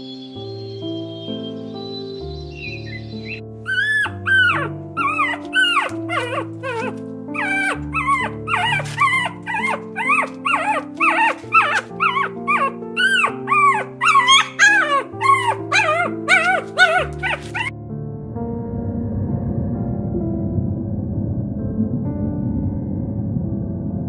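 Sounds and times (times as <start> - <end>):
dog whimpering and yipping: 3.7 - 17.7.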